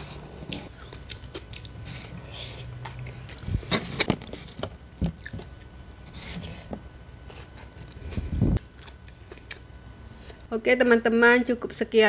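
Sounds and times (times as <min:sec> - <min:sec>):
person chewing salad: 0:00.2 - 0:04.1, 0:05.0 - 0:06.1, 0:07.2 - 0:10.2.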